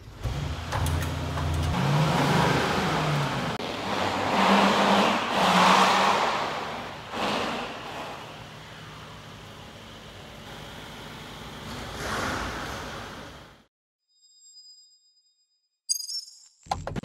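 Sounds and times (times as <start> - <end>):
car engine revving: 0.0 - 13.6.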